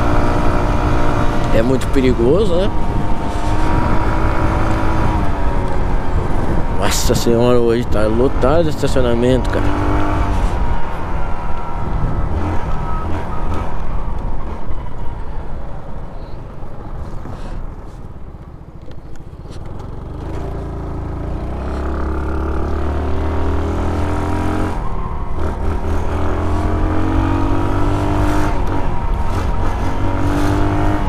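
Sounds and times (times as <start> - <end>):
road noise: 0.0 - 31.0
wind noise: 2.7 - 7.7, 9.8 - 15.6.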